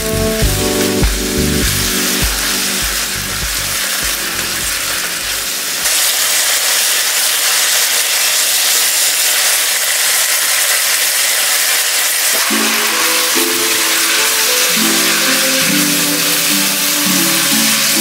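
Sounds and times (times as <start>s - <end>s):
background music: 0.0s - 5.9s, 12.4s - 18.0s
loud sizzle and hiss: 0.0s - 18.0s.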